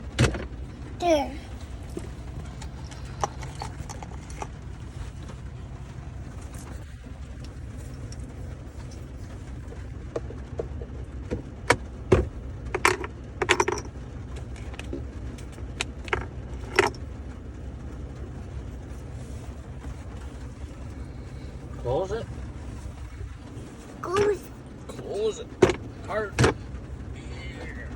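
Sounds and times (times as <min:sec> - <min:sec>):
low hum inside truck cab: 0:00.0 - 0:27.9
clicks taps and rattles: 0:01.6 - 0:05.5, 0:06.3 - 0:17.1, 0:25.6 - 0:26.8.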